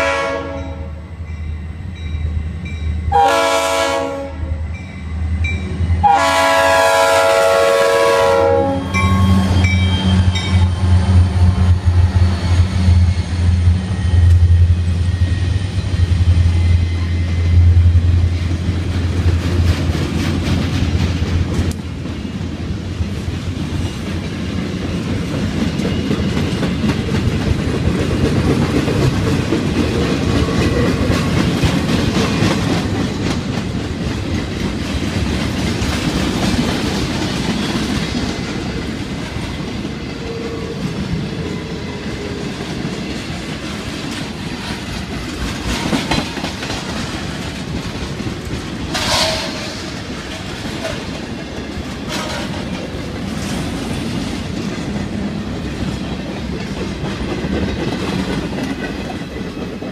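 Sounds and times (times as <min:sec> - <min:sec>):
steel wheels rumbling on rail: 0:00.0 - 0:59.9
clickety-clack over rail joints: 0:14.2 - 0:59.9.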